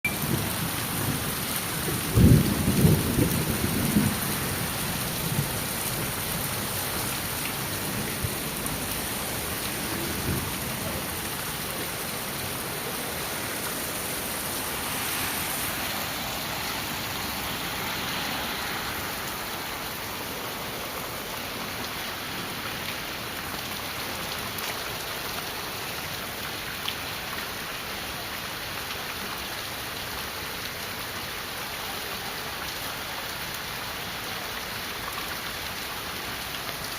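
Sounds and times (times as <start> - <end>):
heavy rain falling: 0.0 - 36.9
low rumble of thunder: 0.2 - 6.3.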